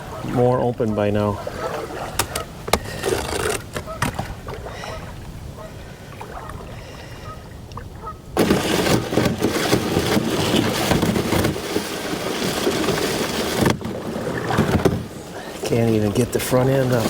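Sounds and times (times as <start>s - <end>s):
canoe hull scraping on ice: 0.0s - 5.0s, 8.4s - 17.0s
ice cracking: 8.4s - 17.0s.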